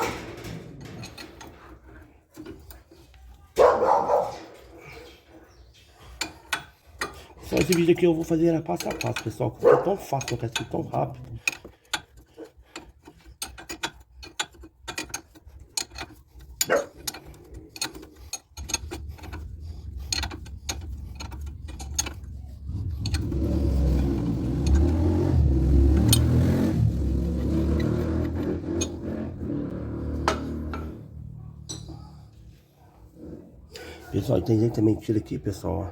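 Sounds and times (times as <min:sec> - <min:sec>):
ratchet wrench clicking: 0:06.2 - 0:09.4, 0:10.0 - 0:31.0
low engine-like rumble: 0:17.2 - 0:32.9.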